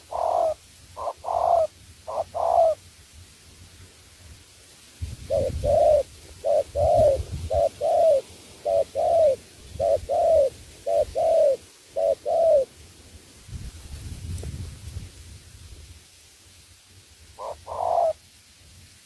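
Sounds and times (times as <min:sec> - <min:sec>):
dove cooing: 0:00.0 - 0:02.8, 0:05.2 - 0:12.7, 0:17.4 - 0:18.2.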